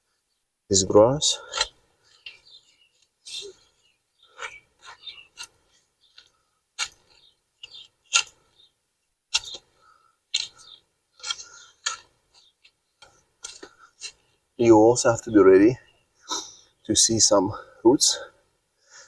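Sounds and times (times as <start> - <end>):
sod tearing from soil: 1.4 - 8.7, 9.3 - 14.4.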